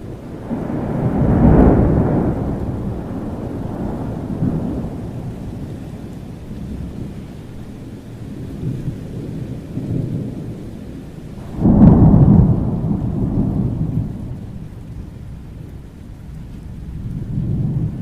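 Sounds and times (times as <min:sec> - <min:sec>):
loud thunderclap: 0:00.0 - 0:05.9, 0:11.4 - 0:15.8
low rumbling thunder: 0:00.0 - 0:18.0
steady rain: 0:00.0 - 0:18.0.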